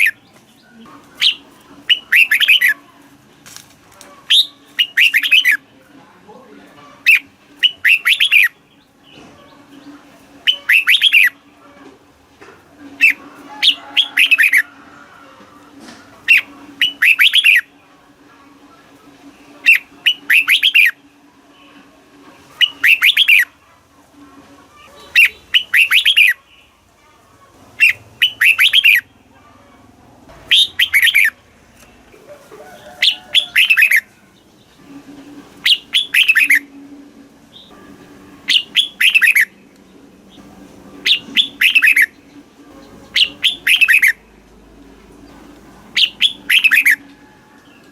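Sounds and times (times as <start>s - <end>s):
bird singing whistled notes: 1.2s - 2.8s, 4.3s - 5.6s, 7.1s - 8.6s, 10.4s - 11.4s, 16.3s - 17.7s, 19.6s - 21.0s, 22.6s - 23.5s, 25.1s - 26.4s, 27.8s - 29.1s, 30.5s - 31.4s, 35.6s - 36.7s, 38.5s - 39.6s, 41.0s - 42.1s, 43.1s - 44.2s, 46.0s - 47.1s.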